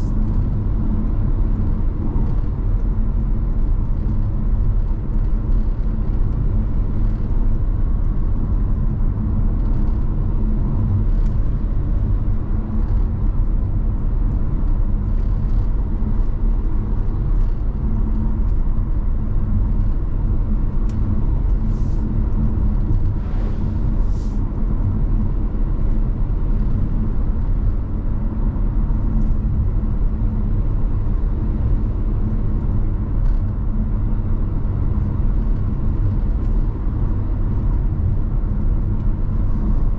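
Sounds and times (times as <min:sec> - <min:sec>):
car engine and tyre rumble: 0:00.0 - 0:39.9
faint steady hum: 0:00.0 - 0:39.9.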